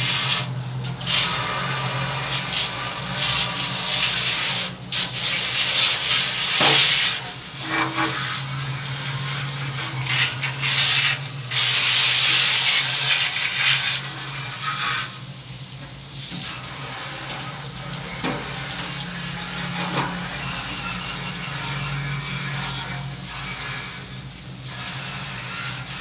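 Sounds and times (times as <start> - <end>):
running water rushing: 5.2 - 8.4.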